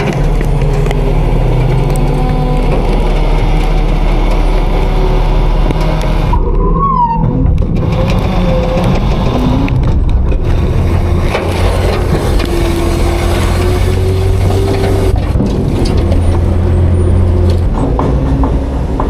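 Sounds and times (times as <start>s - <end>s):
garbage truck diesel drone: 0.0s - 19.0s.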